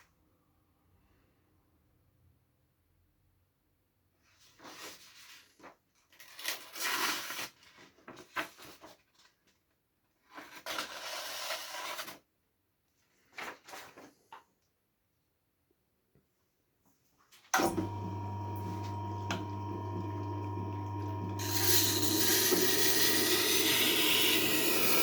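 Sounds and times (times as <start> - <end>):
knife scraping on sharpening wheel: 21.4 - 25.0.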